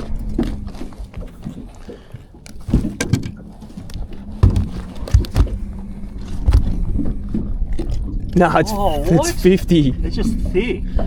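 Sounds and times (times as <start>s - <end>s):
steady low hum: 0.0s - 8.4s
dull knocks on a boat: 2.5s - 3.4s, 4.4s - 5.6s.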